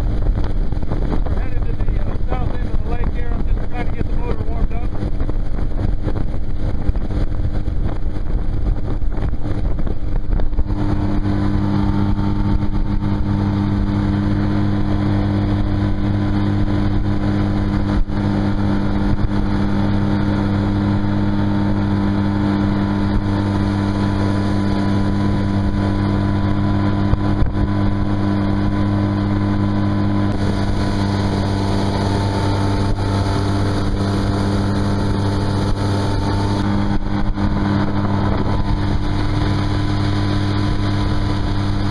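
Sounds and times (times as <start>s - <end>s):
outboard motor humming: 0.0s - 41.9s
wind and water hiss: 5.2s - 41.9s.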